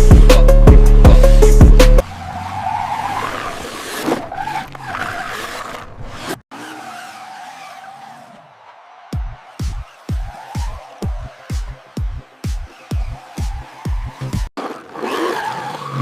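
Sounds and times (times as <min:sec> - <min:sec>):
loud electronic music: 0:00.0 - 0:02.0, 0:09.1 - 0:14.5
car tyre squeal and skid: 0:02.0 - 0:16.0.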